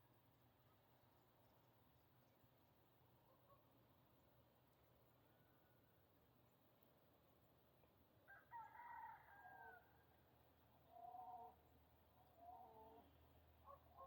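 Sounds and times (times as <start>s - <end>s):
rooster crowing faintly: 8.3s - 10.2s.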